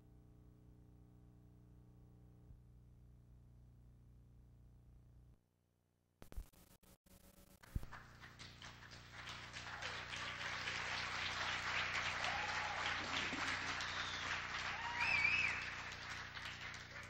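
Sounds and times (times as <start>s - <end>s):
audience applauding: 7.8s - 17.0s
crowd whooping: 7.9s - 17.0s.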